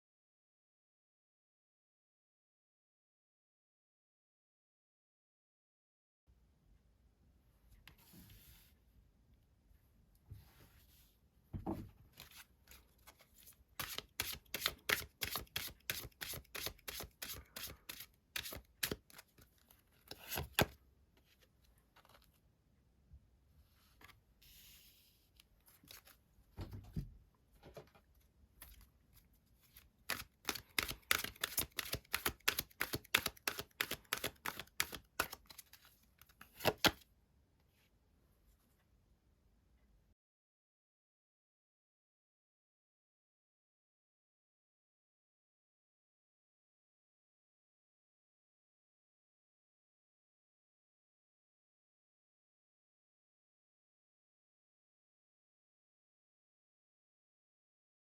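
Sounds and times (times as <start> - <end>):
cards being shuffled: 12.2 - 20.8, 29.7 - 37.0.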